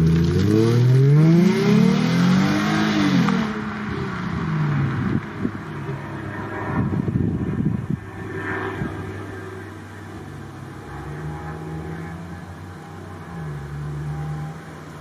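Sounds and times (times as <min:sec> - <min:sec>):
car engine exhaust while driving: 0:00.0 - 0:15.0
wind buffeting microphone: 0:03.4 - 0:09.4.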